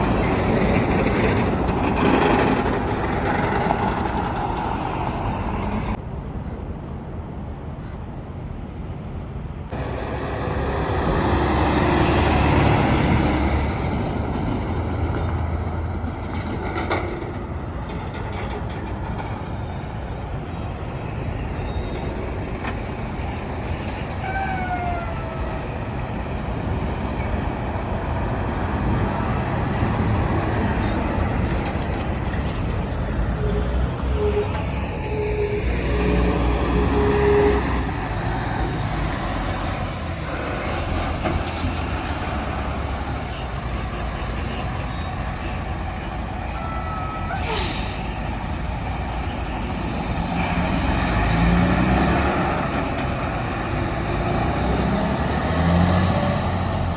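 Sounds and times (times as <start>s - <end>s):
trucks passing on highway: 0.0s - 56.9s
short falling squeal: 21.4s - 22.3s, 30.0s - 38.2s, 41.6s - 50.9s.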